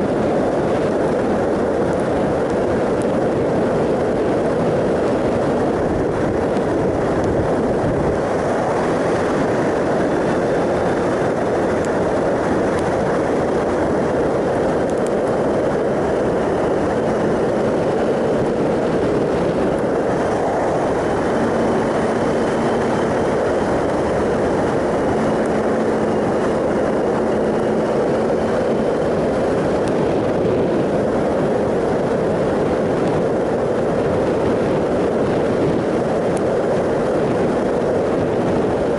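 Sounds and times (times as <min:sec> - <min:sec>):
faint motorcycle engine hum: 0:00.0 - 0:38.9
tyre and road noise: 0:00.0 - 0:38.9
wind rush: 0:00.0 - 0:38.9.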